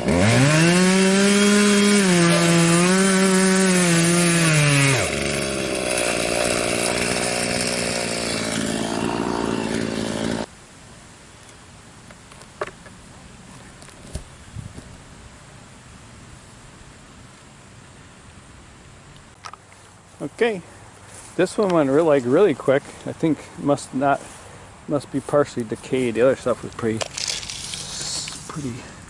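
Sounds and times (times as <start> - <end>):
chainsaw cutting wood: 0.0 - 10.5, 27.0 - 28.6.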